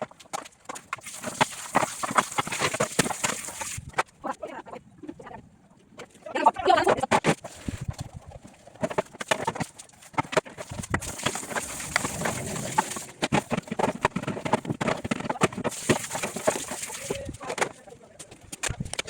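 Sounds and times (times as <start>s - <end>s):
tap water running: 0.9s - 4.0s, 10.9s - 13.2s, 15.6s - 17.4s
plastic parts knocking and clattering: 8.8s - 19.0s.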